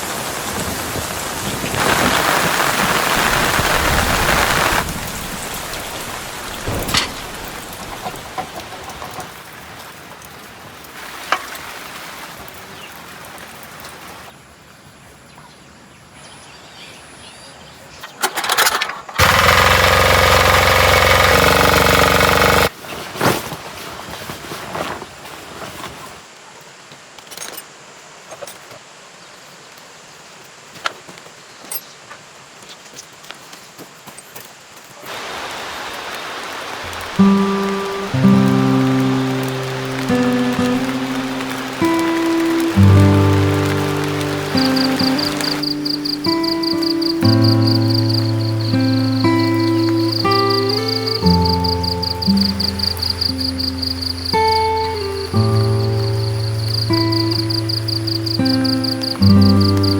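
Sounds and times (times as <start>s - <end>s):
heavy rain: 0.0s - 14.4s, 19.2s - 22.7s, 35.1s - 59.9s
small tiller engine running: 18.3s - 22.7s, 36.9s - 59.9s.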